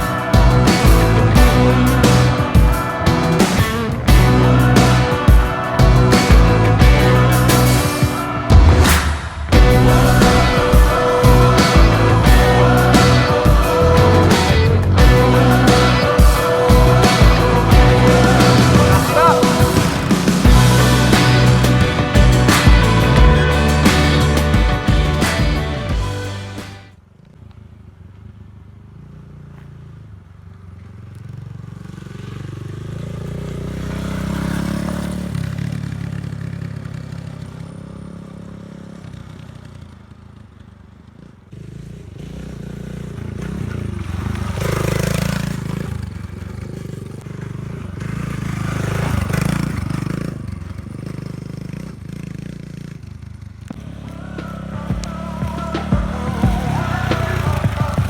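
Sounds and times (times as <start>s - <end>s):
motorbike engine revving: 0.0s - 26.9s, 31.3s - 40.5s, 41.2s - 58.0s.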